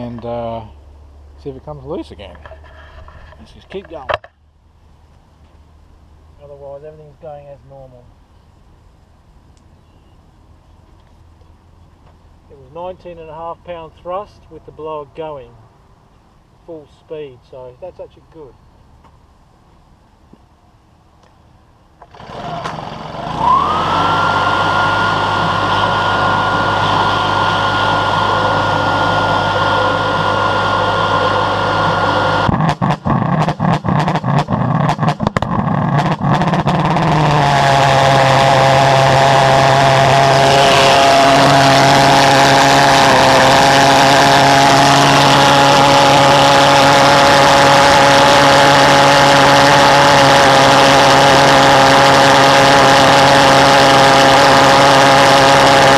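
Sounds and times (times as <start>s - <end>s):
blower whining: 22.0s - 55.9s
pulse jet engine buzzing: 22.0s - 55.9s.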